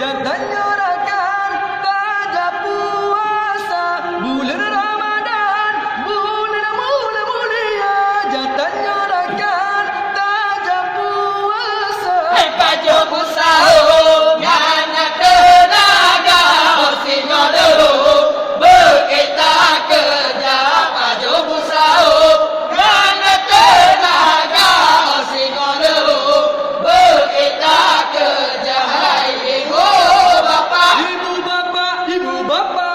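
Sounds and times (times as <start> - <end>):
men chanting a song: 12.2 - 32.8.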